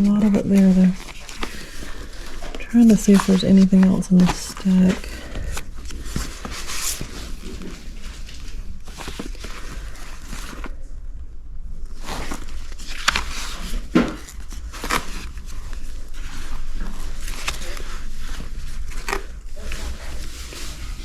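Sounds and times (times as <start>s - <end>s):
paper rustling: 0.0s - 10.8s, 11.9s - 21.0s.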